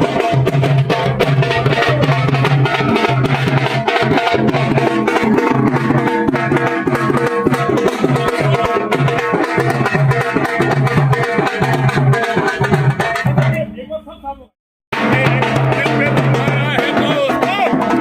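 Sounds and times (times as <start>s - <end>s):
hand drum rhythm: 0.0s - 13.8s, 14.9s - 18.0s.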